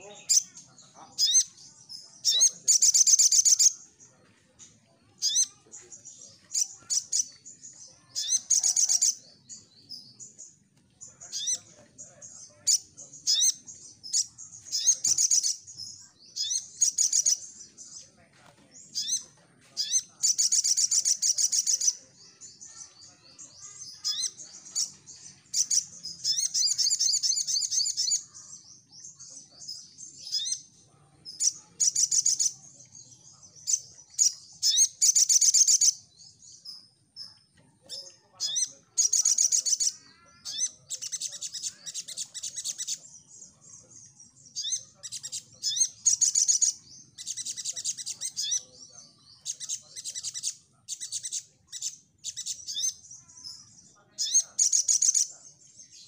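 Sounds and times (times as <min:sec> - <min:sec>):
bird singing high trilled bursts: 0:01.2 - 0:03.8.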